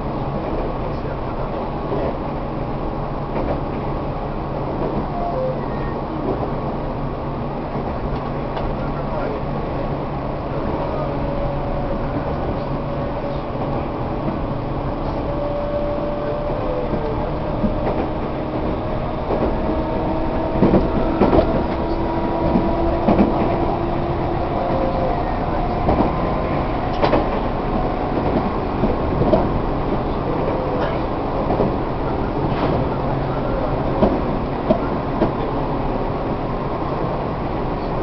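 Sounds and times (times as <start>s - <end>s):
electric train rumble and motor whine: 0.0s - 38.0s
wheels clacking over rail joints: 16.6s - 31.8s.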